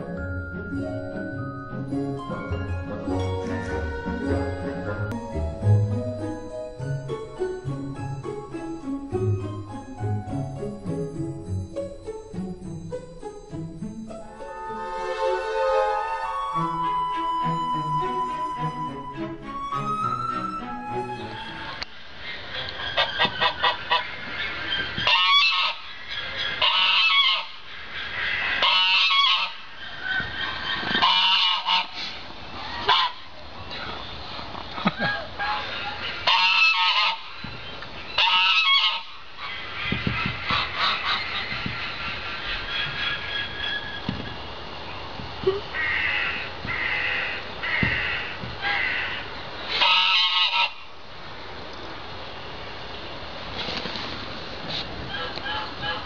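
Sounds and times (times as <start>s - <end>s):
bird honking: 14.5s - 33.3s, 35.0s - 44.4s, 45.7s - 50.9s, 55.1s - 56.0s.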